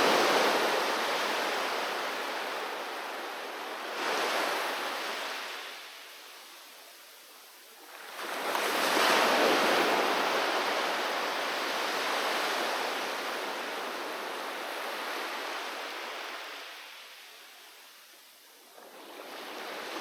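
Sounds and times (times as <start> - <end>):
sea wave breaking on beach: 0.0 - 5.8, 8.0 - 16.8.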